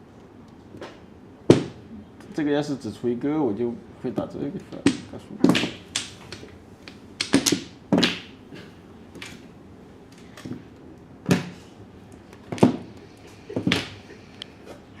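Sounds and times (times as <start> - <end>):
mahjong tiles clacking on table: 4.7 - 8.2.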